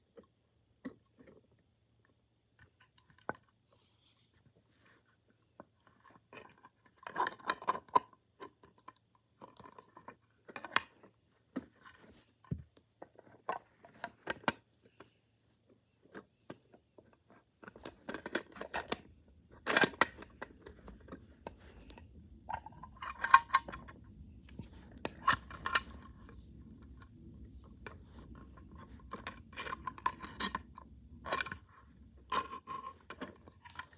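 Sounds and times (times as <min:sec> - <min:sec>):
low steady hum: 0:17.0 - 0:33.9.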